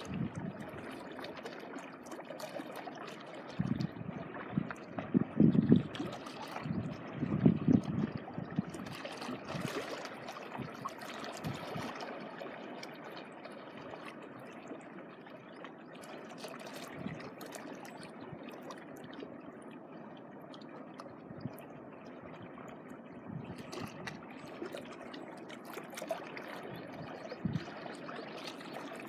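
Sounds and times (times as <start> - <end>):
wind gusts on microphone: 0.0 - 0.8, 3.6 - 9.7, 23.2 - 24.1, 26.7 - 27.7.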